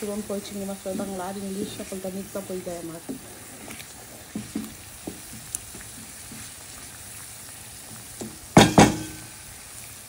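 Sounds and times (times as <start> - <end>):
paste sizzling in hot oil: 0.0 - 10.0
spoon scraping and knocking pan: 3.0 - 6.5, 8.2 - 9.3.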